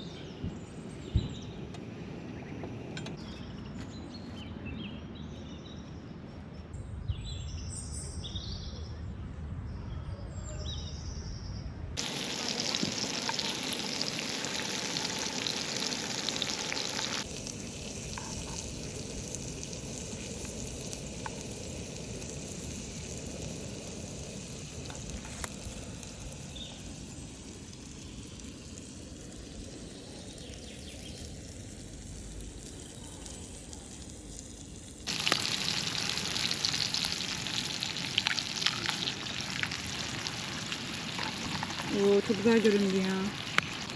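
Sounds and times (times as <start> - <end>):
sausage sizzling in a pan: 12.0 - 43.9.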